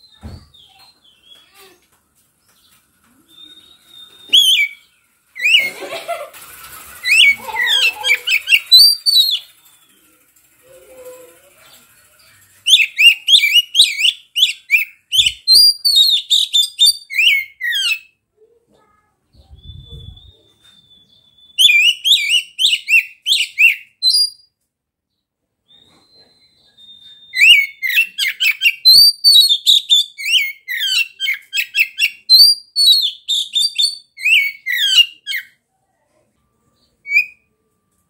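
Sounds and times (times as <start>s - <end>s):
bird singing whistled phrases: 3.2s - 5.7s, 12.6s - 18.1s, 19.4s - 24.4s, 25.7s - 35.5s, 37.0s - 37.4s.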